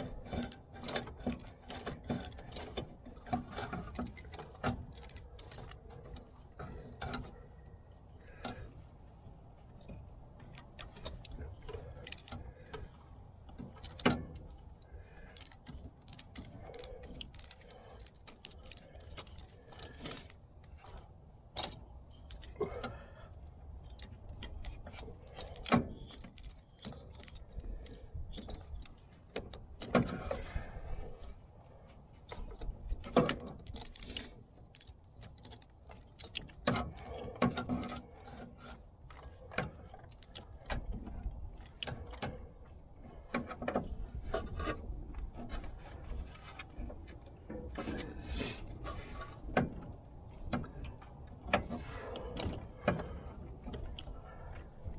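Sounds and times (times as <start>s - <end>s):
hand tools clinking: 15.4s - 20.4s.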